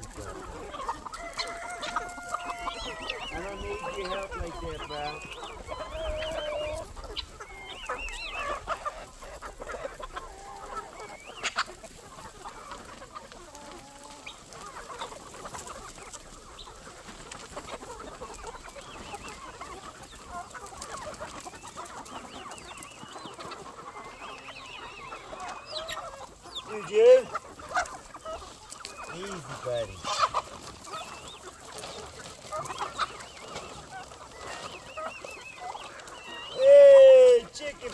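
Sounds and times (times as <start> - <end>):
chickens clucking: 0.0 - 37.9.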